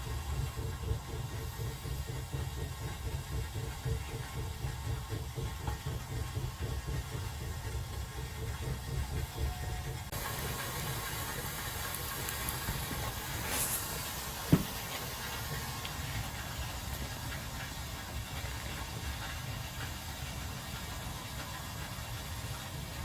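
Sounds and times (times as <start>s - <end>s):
wood fire hissing in stove: 0.0s - 23.0s
wood fire popping: 10.1s - 22.2s.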